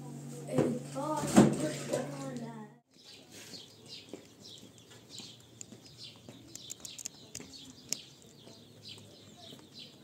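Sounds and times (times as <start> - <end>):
birds chirping: 1.6 - 10.0
sharp clicks: 6.5 - 8.4.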